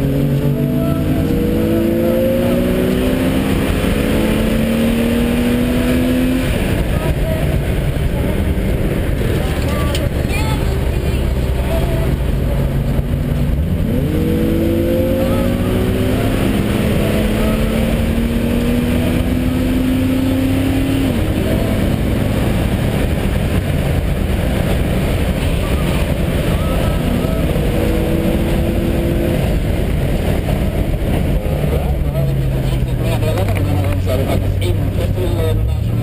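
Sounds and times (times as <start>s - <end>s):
car engine accelerating: 0.0s - 36.0s
road and wind noise: 0.0s - 36.0s.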